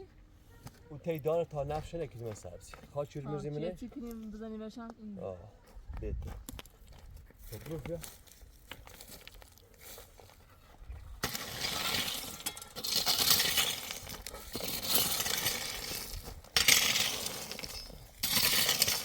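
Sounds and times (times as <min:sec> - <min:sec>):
small hard objects rattling: 0:11.2 - 0:19.0.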